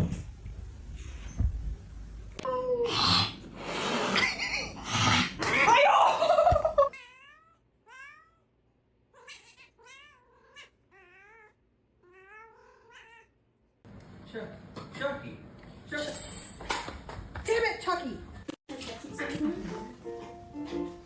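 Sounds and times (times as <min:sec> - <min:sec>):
cat yowling: 0:06.9 - 0:08.5, 0:09.2 - 0:13.3.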